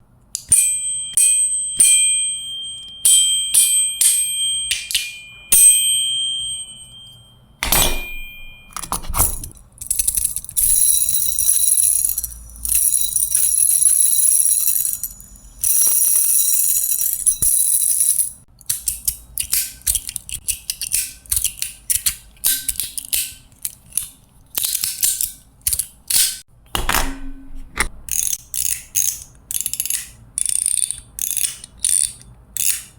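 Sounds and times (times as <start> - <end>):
metallic clicks with ringing: 0.3 - 16.1.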